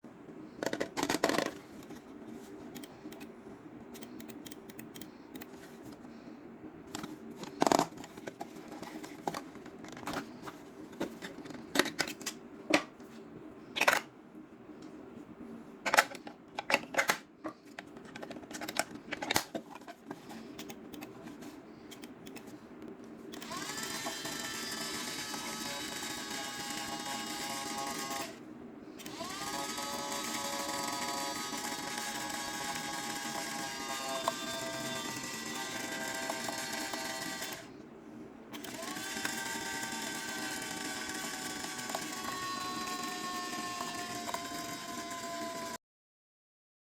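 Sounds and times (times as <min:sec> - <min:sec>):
faint steady hum: 0:00.0 - 0:45.8
small electric motor whine: 0:23.3 - 0:28.4, 0:29.0 - 0:37.7, 0:38.6 - 0:45.8.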